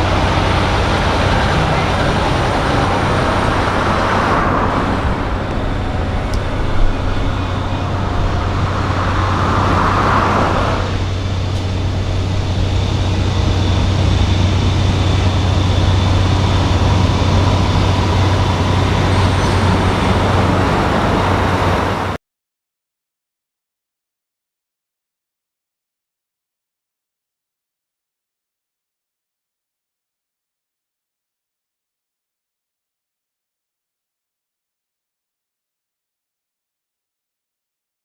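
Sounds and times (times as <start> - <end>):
diesel truck engines droning: 0.0 - 22.2.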